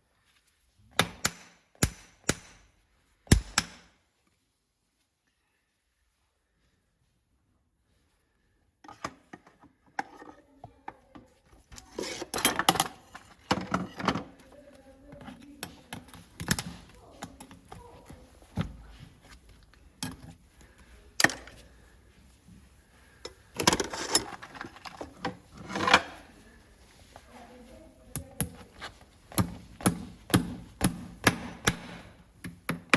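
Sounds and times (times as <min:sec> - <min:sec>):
tools scraping horse hoof: 0:11.7 - 0:14.4, 0:23.2 - 0:26.3.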